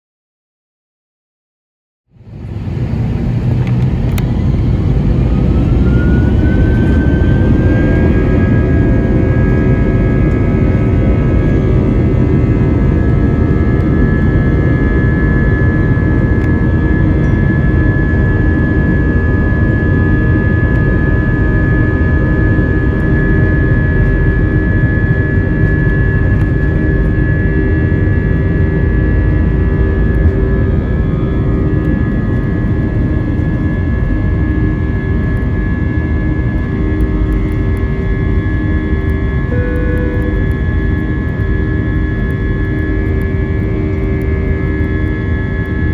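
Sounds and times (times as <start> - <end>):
jet engines spooling up: 2.2 - 45.9.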